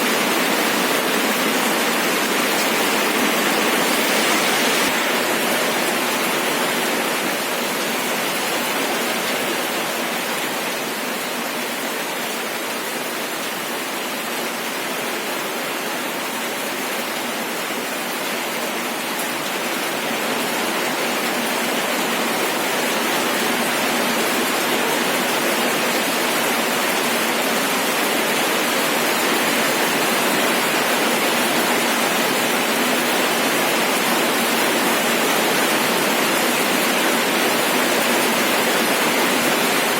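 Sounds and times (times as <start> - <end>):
steady rainfall hiss: 0.0 - 39.9.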